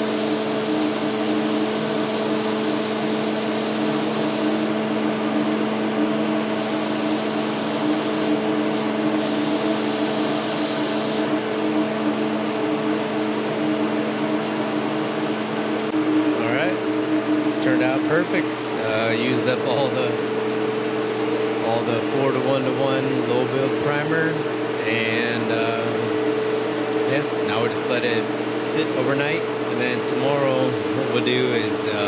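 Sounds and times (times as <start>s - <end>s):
spray gun hissing: 0.0s - 4.8s, 6.6s - 11.4s
exhaust fan humming: 0.0s - 32.0s.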